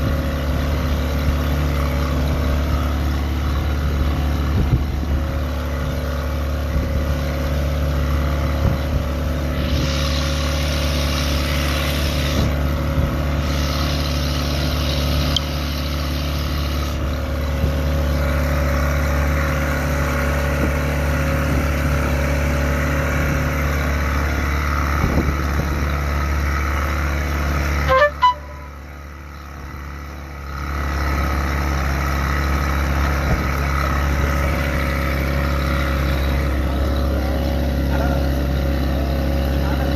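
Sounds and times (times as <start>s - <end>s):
boat engine running: 0.0s - 39.9s
brief sharp sound: 27.9s - 28.8s.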